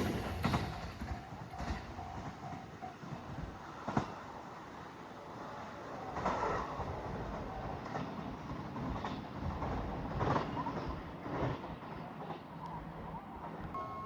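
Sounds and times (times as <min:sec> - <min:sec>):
wheels knocking over rail joints: 0:00.0 - 0:01.1
train rumbling on track: 0:00.0 - 0:14.0.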